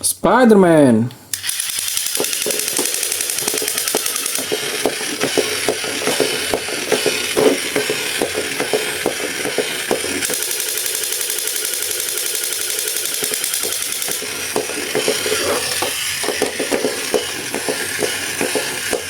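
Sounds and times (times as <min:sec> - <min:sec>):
rapid clicking and rattling: 0:01.4 - 0:19.0.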